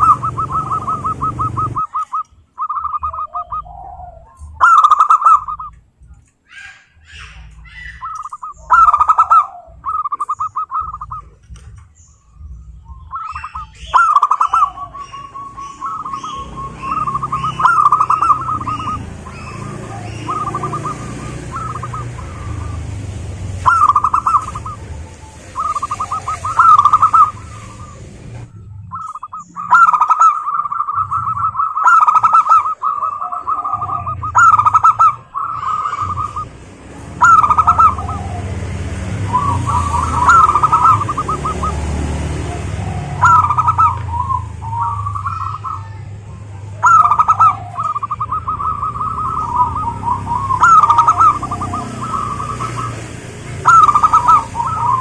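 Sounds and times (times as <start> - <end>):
dove cooing: 0.0 - 5.8, 6.5 - 11.7, 12.3 - 55.0.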